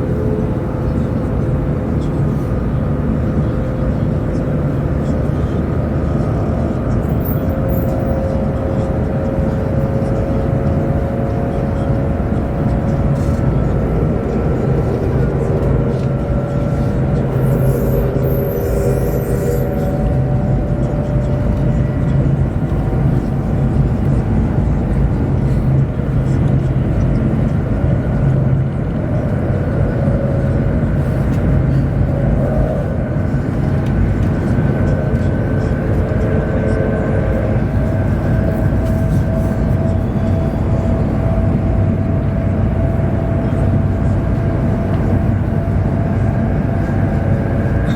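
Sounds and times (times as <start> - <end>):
train cabin rumble and rushing: 0.0 - 47.9
faint high whine: 11.2 - 23.4.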